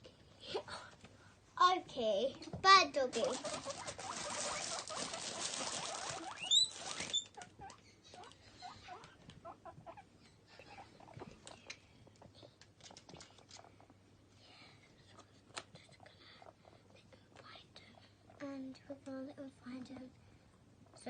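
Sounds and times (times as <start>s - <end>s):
guinea pigs rustling in bedding: 2.6s - 13.8s
guinea pig squeaks: 3.0s - 13.9s, 15.8s - 16.9s, 17.9s - 20.0s.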